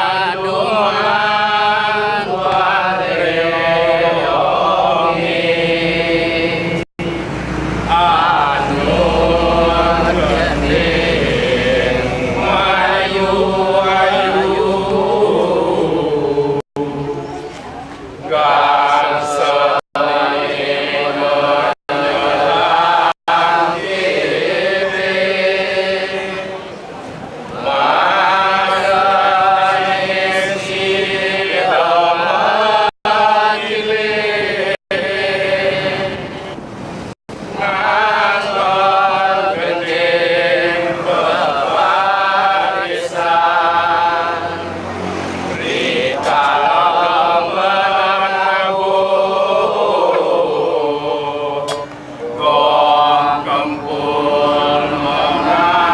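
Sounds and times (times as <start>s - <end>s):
person chanting a slow melody: 0.0s - 26.9s, 27.5s - 36.5s, 37.5s - 55.9s
sharp click: 51.7s - 52.0s.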